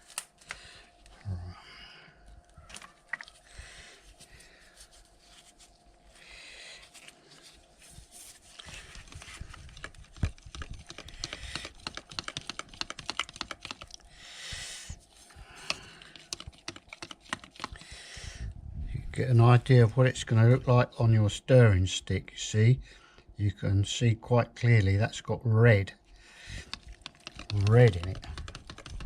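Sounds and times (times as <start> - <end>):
stick scraping in plastic cup: 8.6 - 14.0, 16.0 - 17.8, 26.6 - 29.0.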